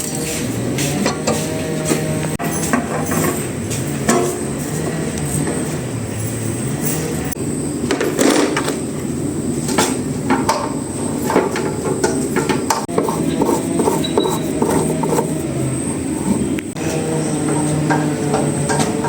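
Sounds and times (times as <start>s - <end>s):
steady low hum: 12.9s - 16.8s.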